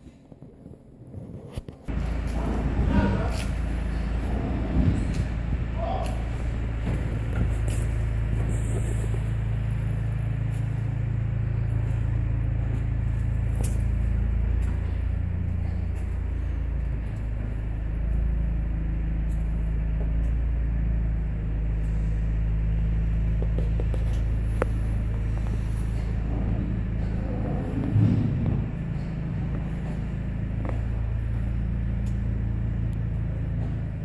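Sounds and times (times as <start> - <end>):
car engine idling: 1.9 - 34.0.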